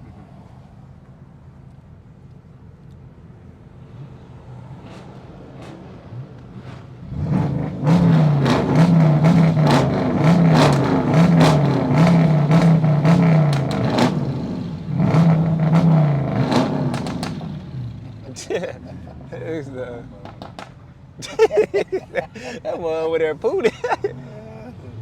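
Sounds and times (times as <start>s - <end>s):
car engine revving: 4.7s - 25.0s
sharp cracks: 20.2s - 20.8s.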